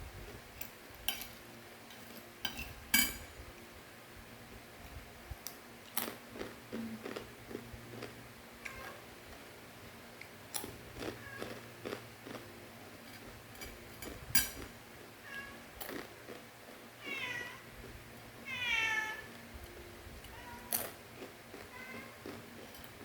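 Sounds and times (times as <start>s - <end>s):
cat meowing: 17.0s - 17.6s, 18.5s - 19.3s, 20.3s - 20.8s.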